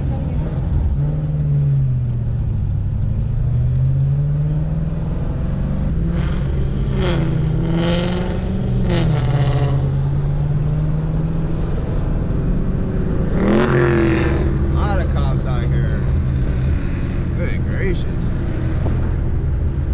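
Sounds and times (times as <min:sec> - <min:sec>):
car engine running at low revs: 0:00.0 - 0:19.9.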